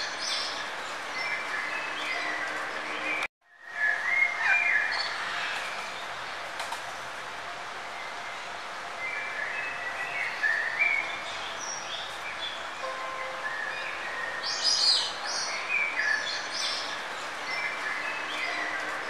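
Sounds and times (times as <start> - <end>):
birds chirping: 9.1 - 19.0.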